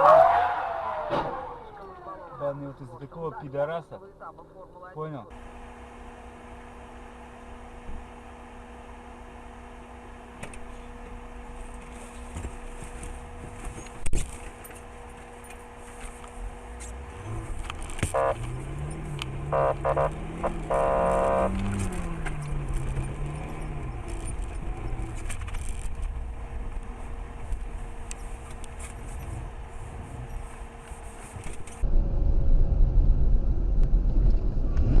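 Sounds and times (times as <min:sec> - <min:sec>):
car running hum: 0:00.0 - 0:35.0
car horn: 0:18.0 - 0:18.8, 0:19.4 - 0:22.1.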